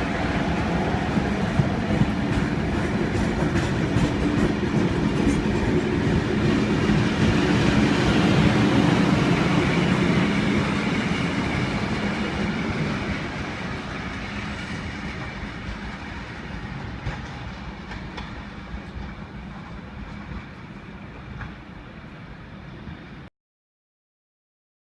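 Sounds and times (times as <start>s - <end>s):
train passing: 0.0s - 23.3s
wheels clicking over rail joints: 1.2s - 7.3s, 11.5s - 21.6s.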